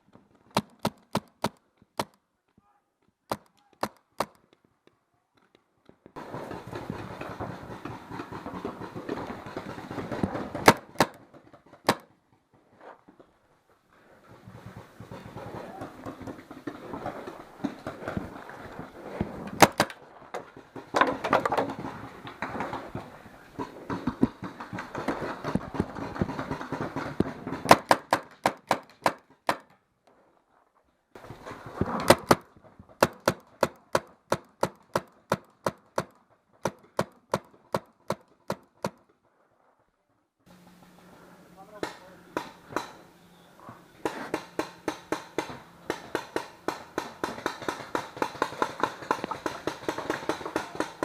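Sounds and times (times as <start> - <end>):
paintball markers firing: 0.5 - 2.2, 3.3 - 4.6, 5.4 - 12.2, 19.6 - 20.0, 21.0 - 29.7, 31.8 - 39.1, 41.7 - 43.1, 44.0 - 51.0
rustling and movement: 3.1 - 51.0.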